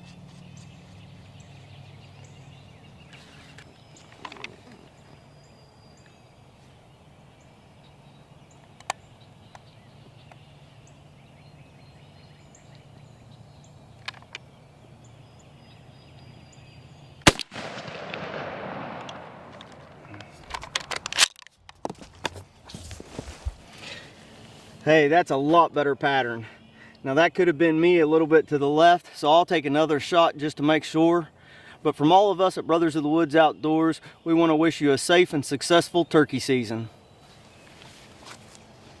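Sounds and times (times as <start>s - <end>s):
shotgun shot with echo: 17.2s - 19.6s
sharp clicks and knocks: 19.0s - 22.4s.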